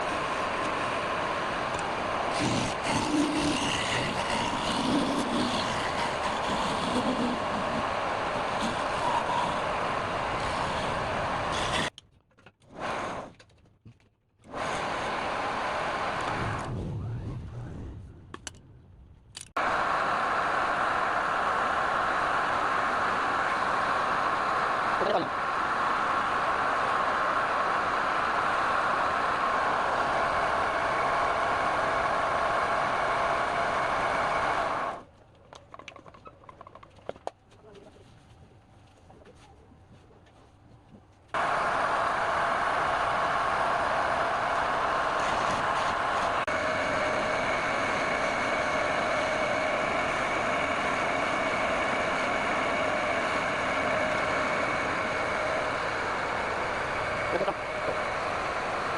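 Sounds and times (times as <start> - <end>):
woodworking power tool whirring: 0.0 - 11.9, 14.4 - 16.7, 19.6 - 35.0, 41.4 - 58.9.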